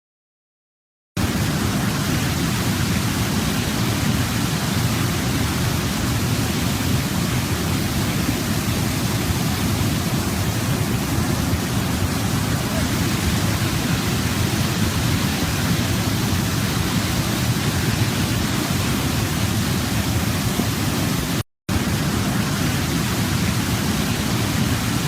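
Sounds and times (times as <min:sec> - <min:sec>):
waterfall rushing: 0:01.2 - 0:25.0.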